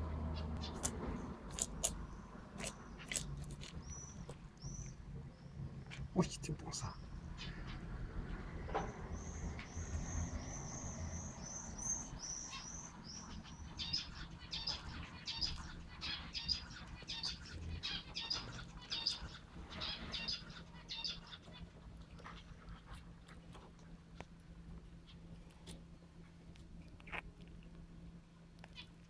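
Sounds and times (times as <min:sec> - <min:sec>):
faint low hum: 0:00.0 - 0:29.0
small bird chirping: 0:00.6 - 0:05.6, 0:09.2 - 0:21.6.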